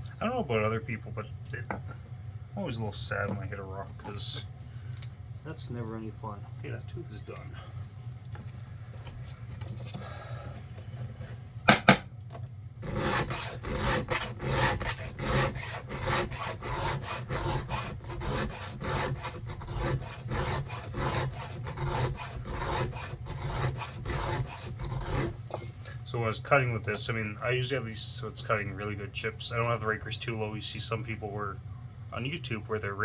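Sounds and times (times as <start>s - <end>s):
file rasping on chainsaw chain: 12.8s - 25.4s.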